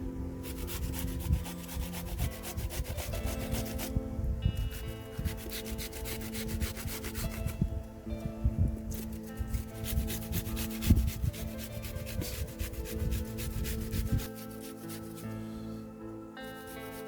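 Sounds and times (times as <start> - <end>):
background music with held notes: 0.0 - 17.0
scraping and rubbing strokes: 0.4 - 17.0.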